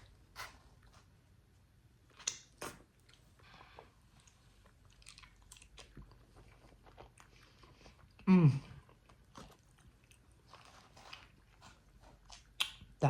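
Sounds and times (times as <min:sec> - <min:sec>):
mouth chewing smacks: 0:02.1 - 0:11.4, 0:12.2 - 0:13.0.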